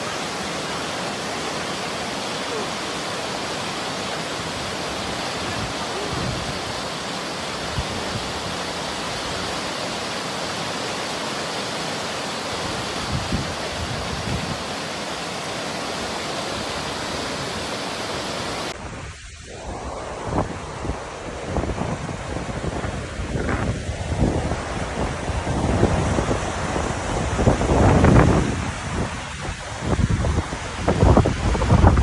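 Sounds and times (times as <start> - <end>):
waterfall rushing: 0.0 - 32.0
gusty wind: 3.7 - 9.7, 12.5 - 14.7, 15.9 - 32.0.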